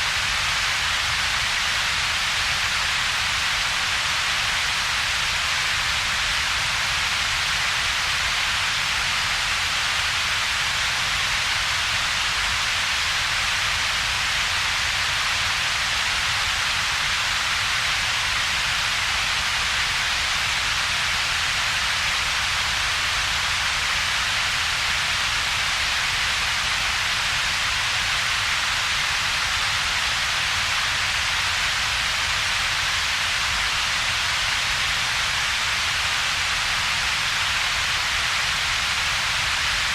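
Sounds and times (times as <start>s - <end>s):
steady synthetic hiss: 0.0s - 39.9s.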